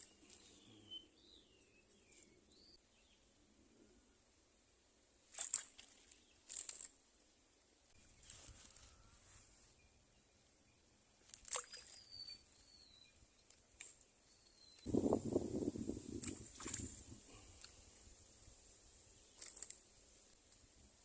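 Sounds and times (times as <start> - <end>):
whistled bird calls: 11.7 - 13.2.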